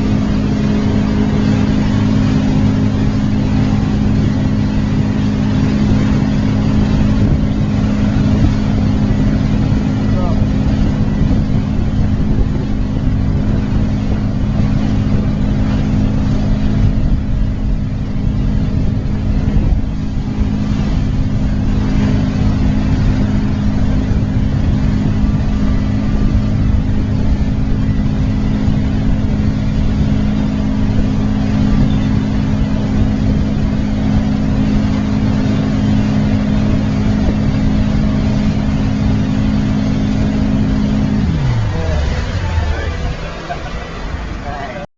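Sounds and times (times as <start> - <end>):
motorboat engine running: 0.0 - 44.9
rushing water and air: 0.0 - 44.9.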